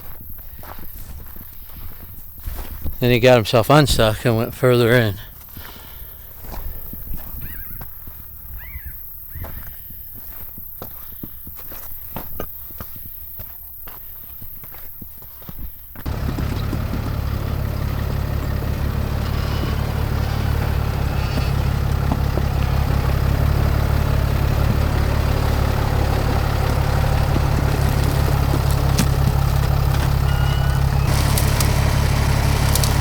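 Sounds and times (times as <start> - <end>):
sharp cracks: 16.1 - 33.0
truck engine droning: 16.1 - 33.0.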